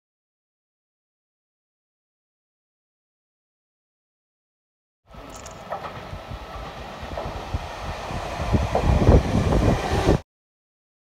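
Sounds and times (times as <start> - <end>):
electric train rumbling: 5.1 - 10.2.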